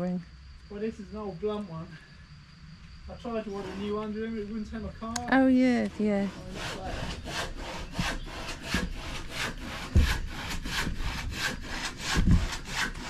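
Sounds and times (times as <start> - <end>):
hand saw cutting wood: 3.5 - 4.1, 5.8 - 13.0.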